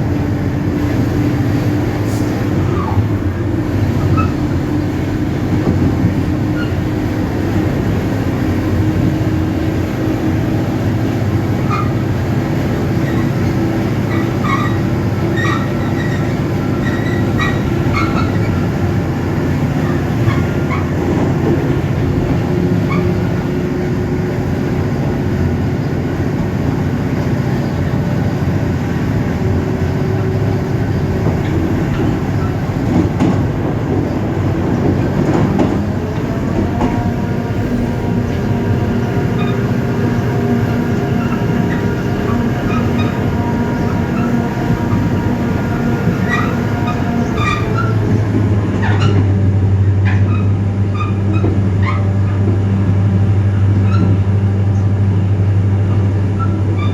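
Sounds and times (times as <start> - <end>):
diesel locomotive engine running: 0.0 - 56.9
wheel and rail noise: 0.0 - 56.9.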